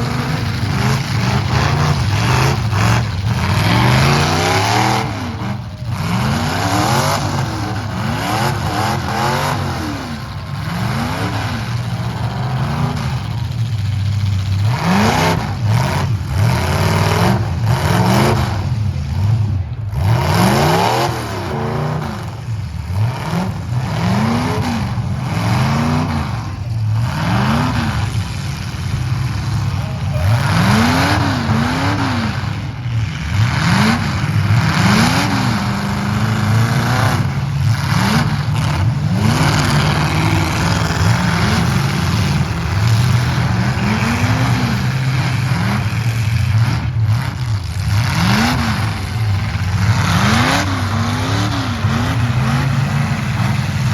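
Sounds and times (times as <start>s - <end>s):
arena crowd noise: 0.0s - 53.9s
truck engines revving: 0.0s - 53.9s.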